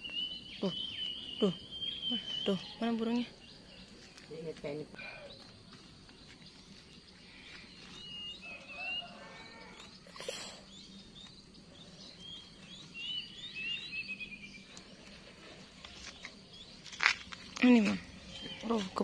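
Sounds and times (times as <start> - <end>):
songbird chirping and trilling: 0.0 - 19.0.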